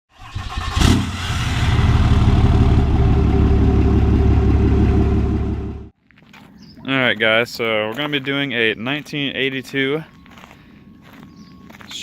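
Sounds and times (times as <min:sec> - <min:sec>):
diesel engine running loudly: 0:00.3 - 0:05.9.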